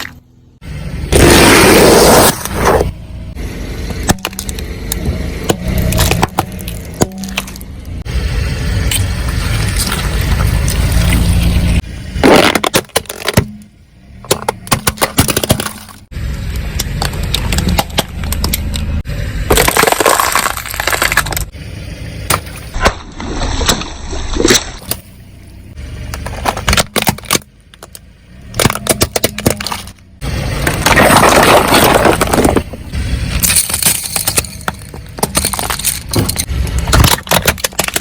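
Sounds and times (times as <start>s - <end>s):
low car rumble: 0.0s - 38.0s
objects cracking under car tyre: 1.1s - 3.0s, 3.8s - 8.0s, 8.8s - 21.6s, 26.0s - 38.0s.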